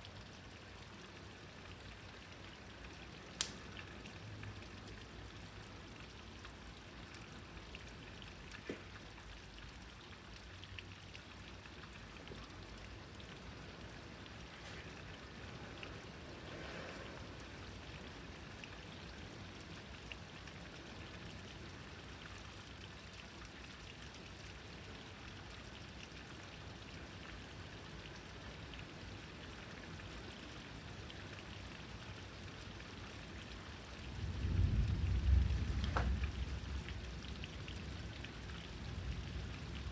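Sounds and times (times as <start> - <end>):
steady rain falling: 0.0 - 39.9
water dripping and trickling: 0.0 - 39.9
faint ticks: 3.4 - 3.9.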